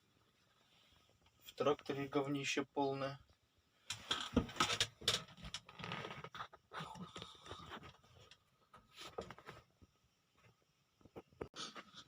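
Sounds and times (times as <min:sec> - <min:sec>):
rustling of objects being handled: 0:03.8 - 0:12.0.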